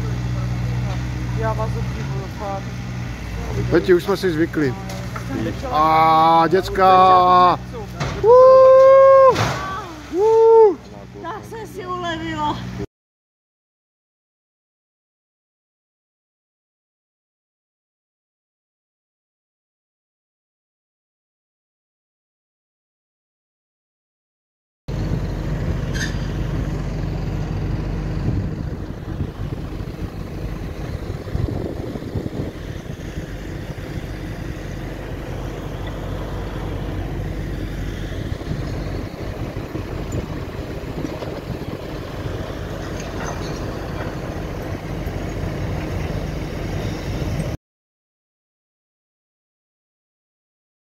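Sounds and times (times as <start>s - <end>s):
diesel machinery running: 0.0s - 12.9s, 24.9s - 47.6s.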